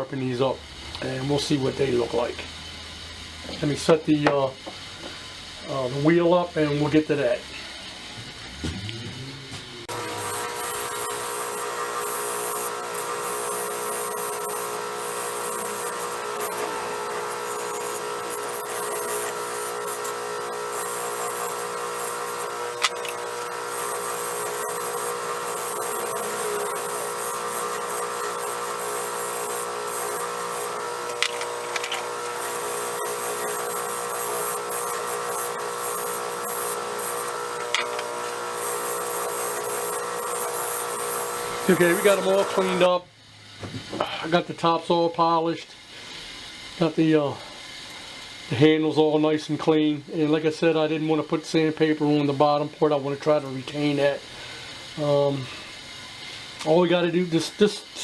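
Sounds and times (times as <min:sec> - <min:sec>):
electric motor humming: 0:08.1 - 0:42.9
chisel hissing on polishing wheel: 0:09.9 - 0:42.9.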